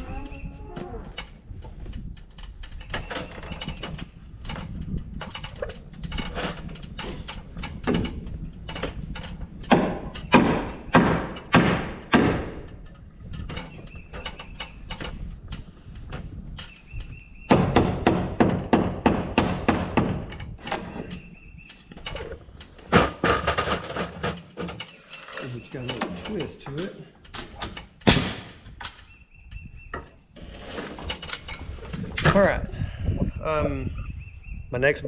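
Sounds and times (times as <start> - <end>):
hammer striking lumber: 9.7 - 12.6, 17.5 - 20.3.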